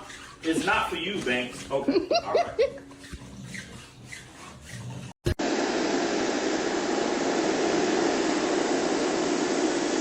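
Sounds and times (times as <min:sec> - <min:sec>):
steady loud rushing noise: 0:05.4 - 0:10.0.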